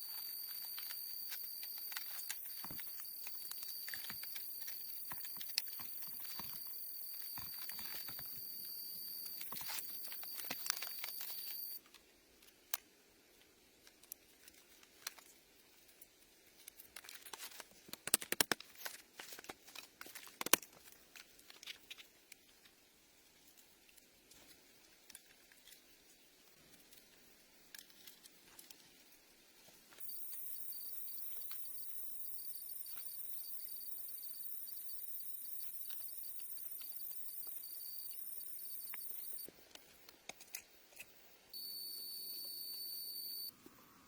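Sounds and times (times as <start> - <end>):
high insect chirring: 0.0 - 11.8.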